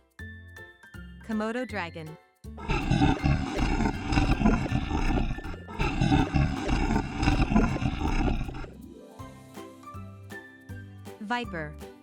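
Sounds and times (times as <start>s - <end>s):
light children's music: 0.0s - 2.6s, 8.8s - 12.0s
rough growling roar: 2.6s - 8.8s.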